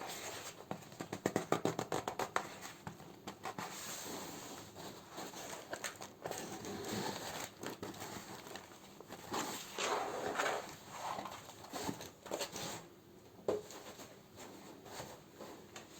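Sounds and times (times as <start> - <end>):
packaging crinkling: 5.2 - 10.8.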